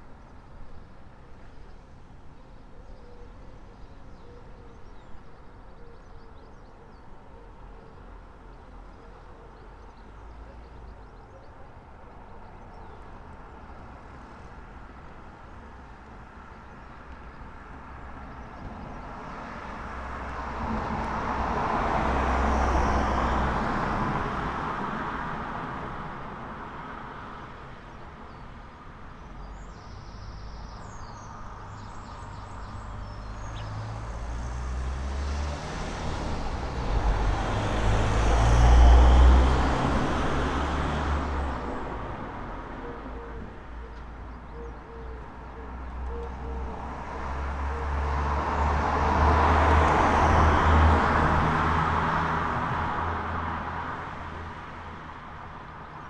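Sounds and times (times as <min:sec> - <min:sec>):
vehicle approaching: 0:31.8 - 0:42.6
vehicle passing: 0:32.4 - 0:42.6, 0:46.4 - 0:55.1.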